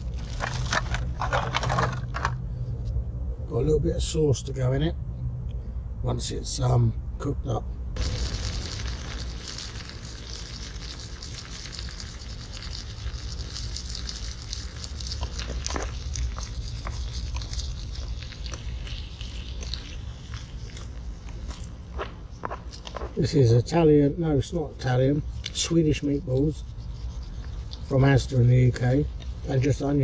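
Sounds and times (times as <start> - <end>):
steady low rumble: 0.0 - 30.0
meatballs sizzling in a pan: 8.0 - 19.9.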